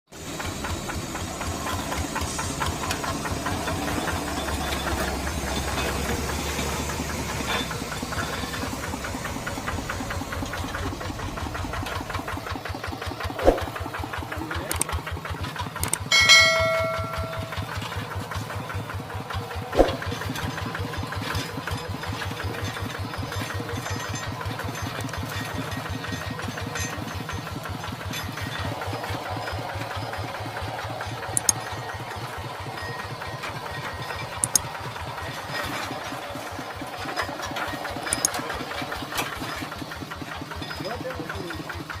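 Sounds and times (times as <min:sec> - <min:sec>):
tractor engine running: 0:00.1 - 0:42.0
short high-pitched tone: 0:16.1 - 0:17.8.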